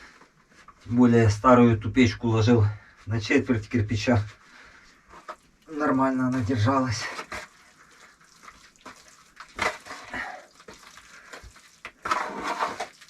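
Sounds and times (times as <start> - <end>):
wet clay scraping: 5.1 - 13.0.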